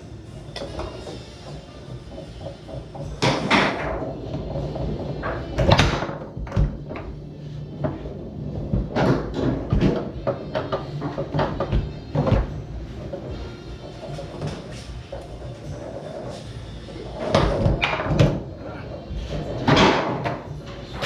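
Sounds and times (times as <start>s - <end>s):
foosball clacking against plastic: 0.6s - 7.2s, 8.7s - 15.3s
foosball shot slams: 5.6s - 6.8s, 19.6s - 20.4s.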